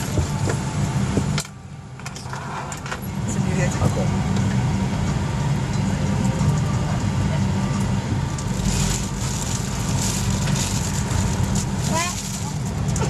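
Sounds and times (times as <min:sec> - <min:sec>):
aircraft cabin hum and air hiss: 0:00.0 - 0:13.0
faint passenger chatter: 0:02.8 - 0:13.0.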